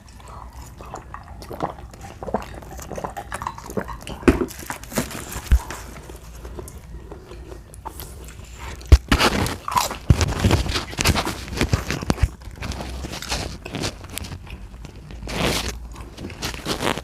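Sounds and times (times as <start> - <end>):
crunchy chewing: 0.0 - 17.0.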